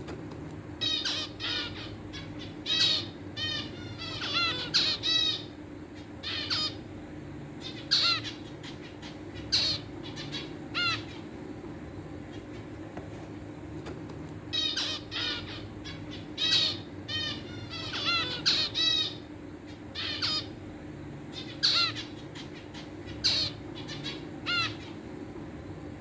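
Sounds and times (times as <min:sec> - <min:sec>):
steady low hum: 0:00.0 - 0:26.0
birds calling sharply: 0:00.6 - 0:06.8, 0:07.5 - 0:11.5, 0:14.4 - 0:25.1.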